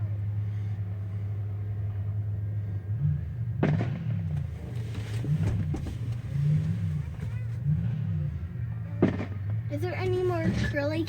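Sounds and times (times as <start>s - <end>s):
steady low hum: 0.0s - 11.0s
crackling firework pops: 9.0s - 9.4s.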